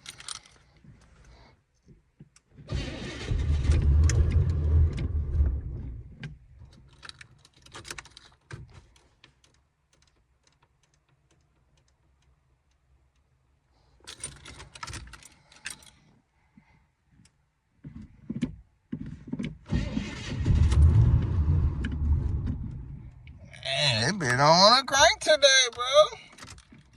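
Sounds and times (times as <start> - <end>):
keys rattling: 0.0 - 0.7, 14.0 - 16.0
car engine cranking: 2.7 - 6.2, 19.6 - 26.1.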